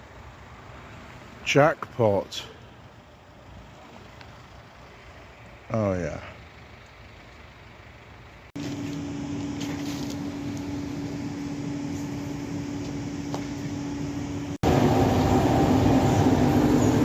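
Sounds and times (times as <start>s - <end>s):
machine hum with held tone: 8.6s - 17.0s.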